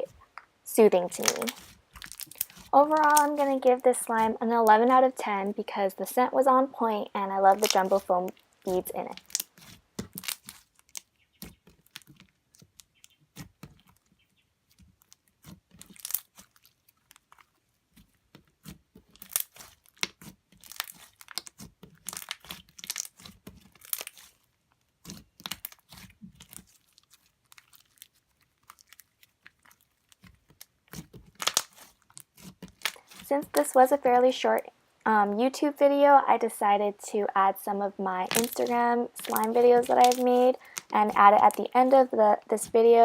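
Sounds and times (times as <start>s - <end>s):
hands squeezing slime: 0.2s - 4.8s, 7.5s - 33.8s, 38.2s - 42.7s
foam beads crunching: 0.8s - 5.2s, 7.2s - 14.0s, 15.0s - 17.5s, 19.1s - 24.4s, 25.1s - 34.0s, 38.2s - 43.0s.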